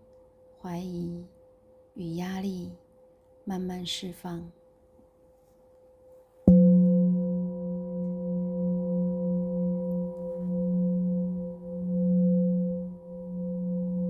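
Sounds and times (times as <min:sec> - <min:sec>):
faint ringing tone: 0:06.0 - 0:14.0
singing bowl ringing: 0:06.5 - 0:14.0.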